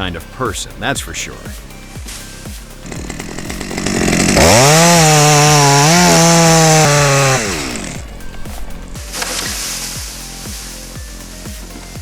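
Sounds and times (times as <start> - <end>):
chainsaw engine revving: 2.8 - 10.0.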